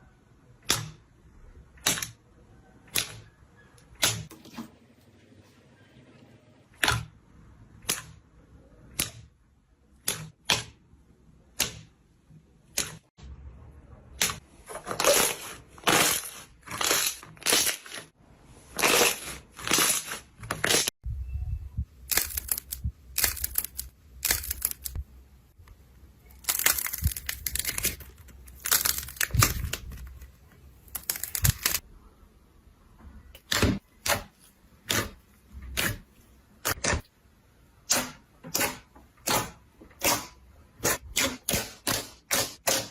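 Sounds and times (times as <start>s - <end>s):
crackly slime squishes: 14.1s - 21.0s, 22.0s - 25.0s, 26.2s - 31.8s.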